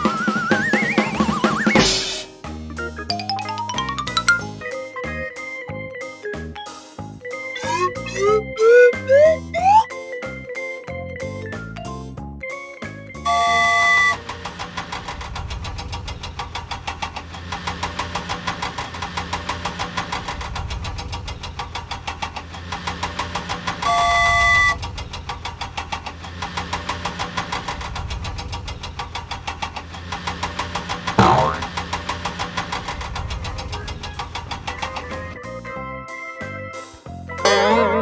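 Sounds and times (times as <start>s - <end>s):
cartoon engine knocking: 7.6s - 9.9s, 13.3s - 35.4s, 37.4s - 38.0s
loud horn honk: 13.3s - 14.2s, 23.8s - 24.8s.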